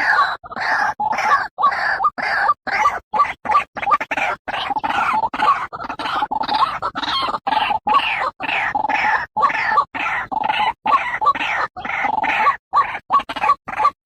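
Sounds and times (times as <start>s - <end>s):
bird making harsh croaking calls: 0.0s - 14.0s.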